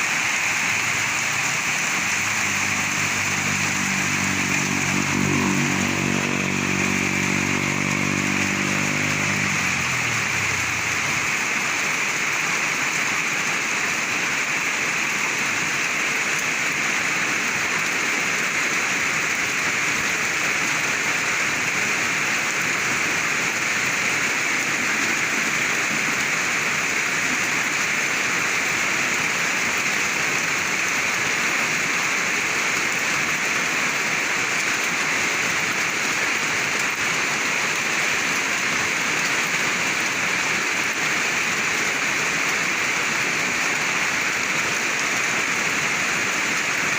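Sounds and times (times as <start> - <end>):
heavy rain falling: 0.0 - 46.9
passing vehicle engine: 0.4 - 12.3.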